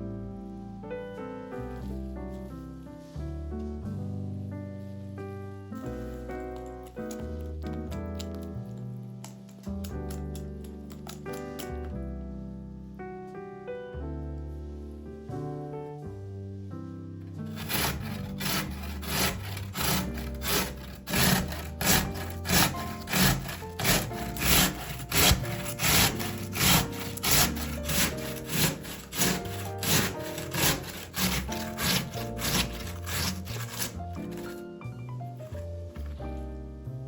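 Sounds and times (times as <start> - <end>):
background music: 0.0 - 37.0
vegetables rasping on metal grater: 17.5 - 34.7.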